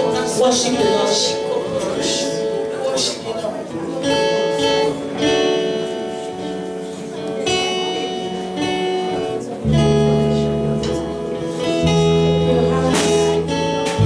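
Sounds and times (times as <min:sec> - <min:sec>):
acoustic guitar strumming chords: 0:00.0 - 0:14.0
deep bass notes: 0:11.8 - 0:14.0.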